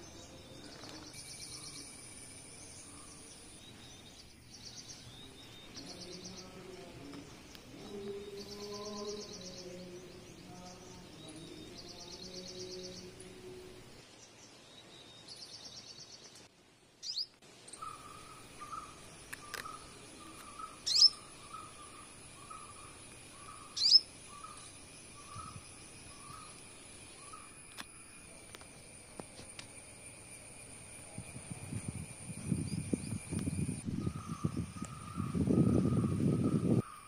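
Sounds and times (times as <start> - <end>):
steady high whine: 17.5 - 36.9.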